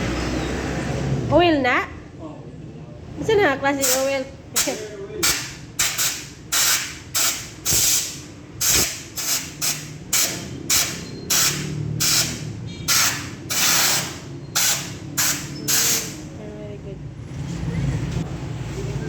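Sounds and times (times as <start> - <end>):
compressed air blasts: 3.8 - 16.3.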